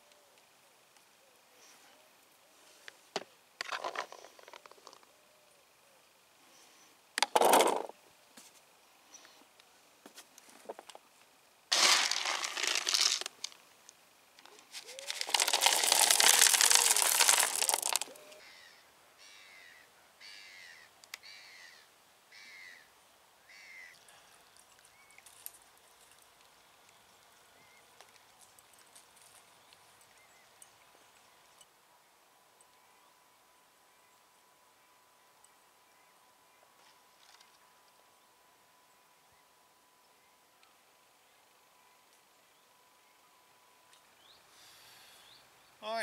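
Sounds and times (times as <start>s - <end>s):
loud rustling rattling noise: 11.7s - 13.6s, 14.8s - 18.1s.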